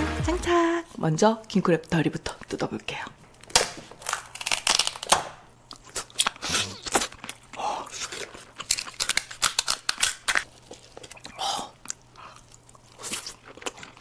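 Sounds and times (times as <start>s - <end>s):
crab shells cracking: 3.4s - 14.0s
chewing: 5.6s - 14.0s.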